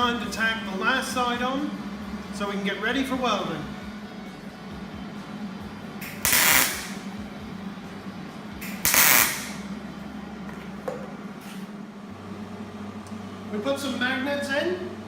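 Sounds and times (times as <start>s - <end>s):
welding arc crackling hiss: 6.0s - 7.2s, 8.6s - 9.7s.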